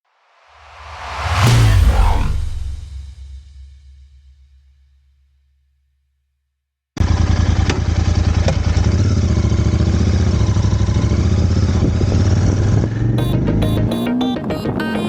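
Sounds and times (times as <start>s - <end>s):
motorcycle engine running at low revs: 7.0s - 14.5s.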